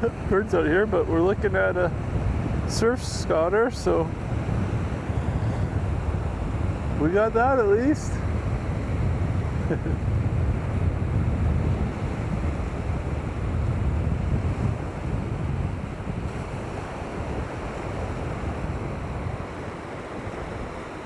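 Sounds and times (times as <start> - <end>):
surf washing on shore: 0.0 - 21.0
wind buffeting microphone: 0.0 - 21.0.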